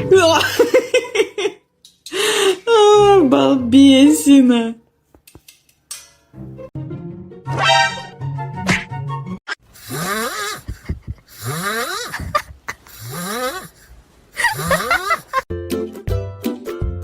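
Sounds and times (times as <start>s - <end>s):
plucked music: 6.0s - 9.4s.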